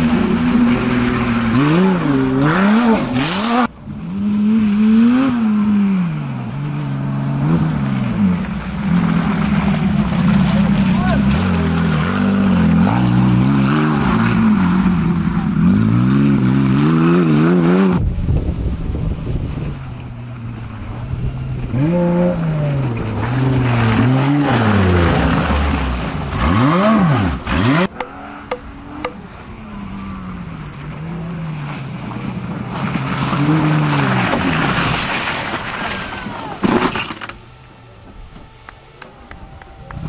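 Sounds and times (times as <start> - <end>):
buggy engines revving: 0.0 - 40.0
sharp knocks: 27.9 - 29.2.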